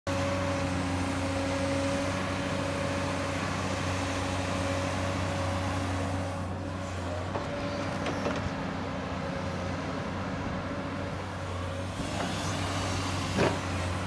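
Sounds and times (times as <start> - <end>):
excavator diesel engine running: 0.1 - 14.0.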